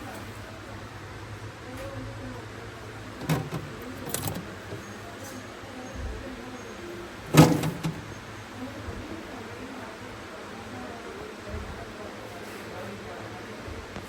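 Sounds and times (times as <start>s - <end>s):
knocks and clicks: 3.2s - 4.8s, 7.3s - 8.2s.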